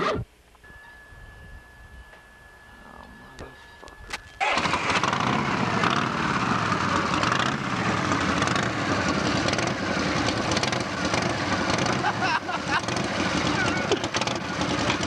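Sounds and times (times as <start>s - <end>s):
motorcycle engine idling: 4.4s - 15.0s.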